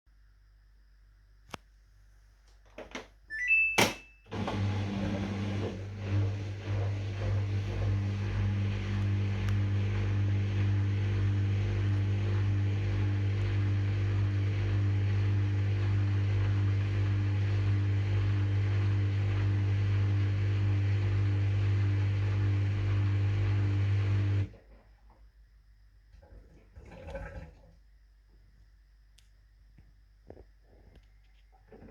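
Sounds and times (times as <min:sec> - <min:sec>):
short high beep: 0:03.3 - 0:04.3
electric pump hum: 0:04.3 - 0:24.6.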